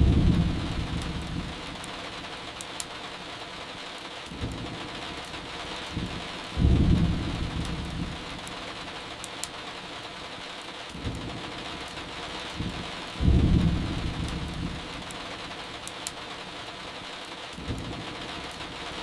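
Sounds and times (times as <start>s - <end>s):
thunder rumble: 0.0s - 1.9s, 5.8s - 8.5s, 12.6s - 15.1s
firewood crackling: 0.0s - 19.0s
steady rain: 0.0s - 19.0s.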